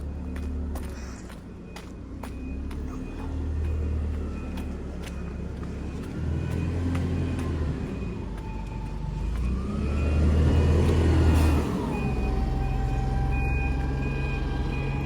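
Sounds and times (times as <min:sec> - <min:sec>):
diesel engine running: 0:00.0 - 0:15.0
faint reversing beeper: 0:00.0 - 0:15.0.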